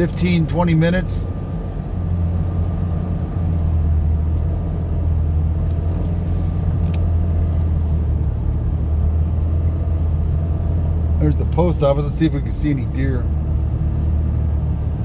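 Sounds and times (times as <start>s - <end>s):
truck engine and road drone: 0.0s - 15.0s.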